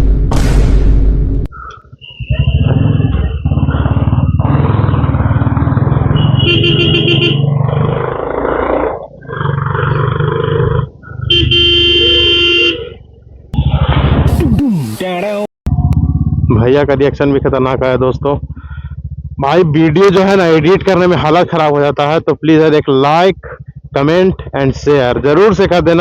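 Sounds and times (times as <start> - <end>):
horn pulses: 2.2 - 7.6, 11.2 - 13.0
motorcycle running: 2.2 - 14.9, 15.7 - 26.0
loud noise bursts: 13.6 - 15.4.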